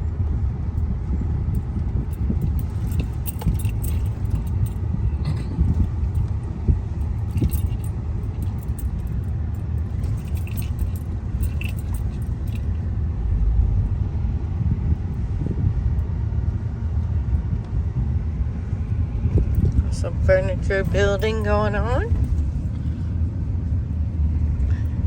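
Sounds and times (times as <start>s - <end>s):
car tyres rumbling on road: 0.0s - 25.0s
jingling rattles in car: 1.5s - 13.0s, 19.3s - 23.4s.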